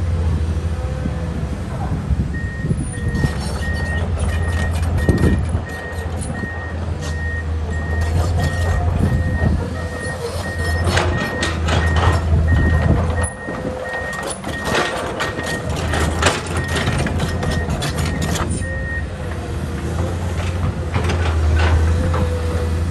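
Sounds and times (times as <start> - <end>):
diesel engine running: 0.0 - 22.9
travel alarm beeping: 5.0 - 15.7.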